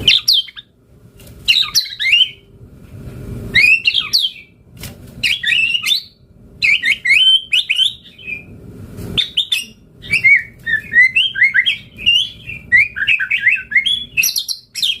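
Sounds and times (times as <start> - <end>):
bird singing whistled notes: 3.6 - 4.5, 5.2 - 8.5, 9.2 - 15.0.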